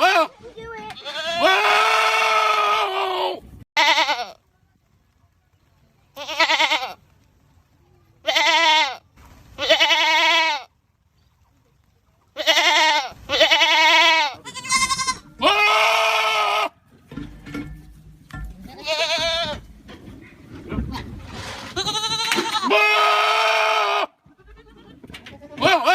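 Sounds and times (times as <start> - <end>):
goats bleating loudly: 0.0 - 4.4, 6.2 - 7.0, 8.2 - 9.0, 9.6 - 10.7, 12.4 - 16.8, 18.7 - 19.7, 21.7 - 25.9.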